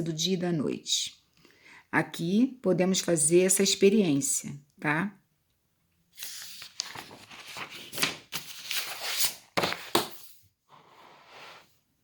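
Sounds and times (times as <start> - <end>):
paper pages rustling: 6.1 - 10.4.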